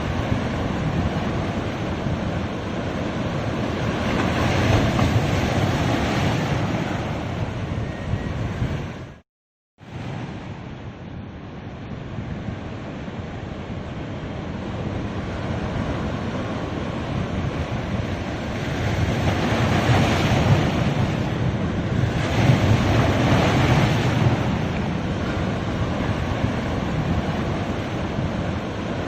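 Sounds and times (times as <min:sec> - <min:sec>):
wind rumbling on microphone: 0:00.0 - 0:09.2, 0:09.8 - 0:29.0
sea waves washing onto beach: 0:12.6 - 0:29.0.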